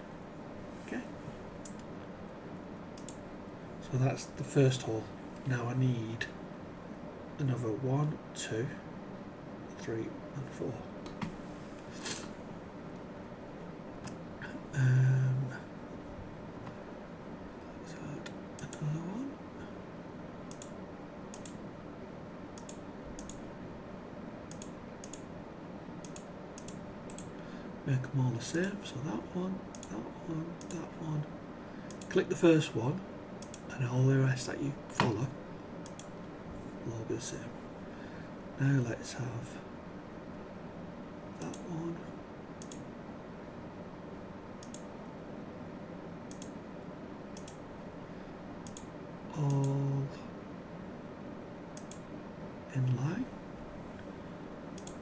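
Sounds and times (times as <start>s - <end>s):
low room hum: 0.0s - 55.0s
computer mouse clicking: 3.0s - 3.2s, 20.5s - 21.6s, 22.6s - 23.5s, 24.5s - 25.3s, 26.0s - 27.4s, 29.7s - 30.0s, 30.6s - 30.8s, 31.9s - 32.1s, 33.4s - 33.7s, 35.8s - 36.2s, 42.6s - 42.9s, 44.6s - 44.9s, 46.3s - 46.6s, 47.4s - 47.6s, 48.6s - 49.8s, 51.8s - 52.1s, 54.7s - 55.0s.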